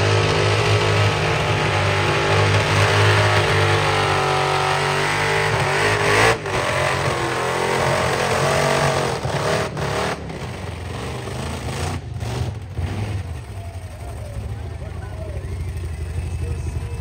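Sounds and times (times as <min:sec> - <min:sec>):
car engine at high revs: 0:00.0 - 0:13.4.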